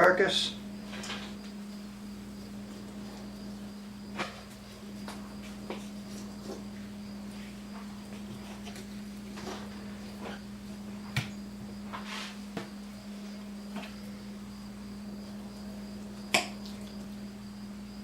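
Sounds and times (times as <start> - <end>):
knife scrape: 12.0 - 12.4.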